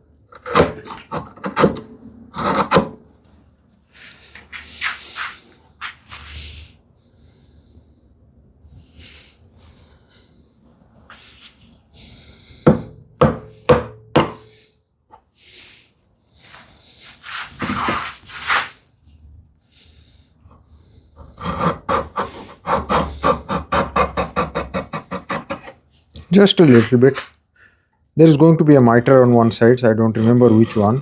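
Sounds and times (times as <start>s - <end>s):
hand tool scraping wood: 0.4s - 1.8s, 2.4s - 3.0s, 17.2s - 18.8s, 21.2s - 27.4s, 28.9s - 31.0s
short rasping strokes: 29.2s - 31.0s.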